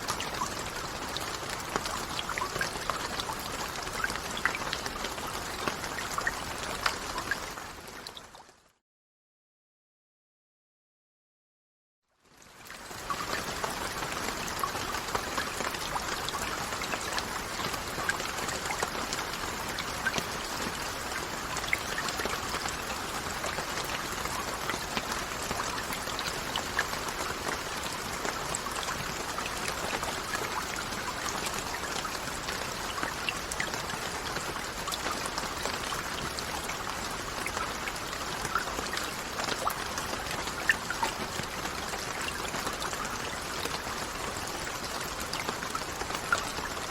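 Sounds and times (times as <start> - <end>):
raindrops ticking: 12.8 - 46.9.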